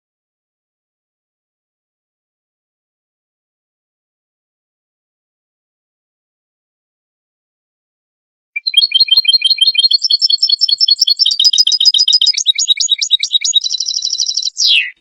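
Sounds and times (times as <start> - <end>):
finch twittering song: 8.6 - 15.0.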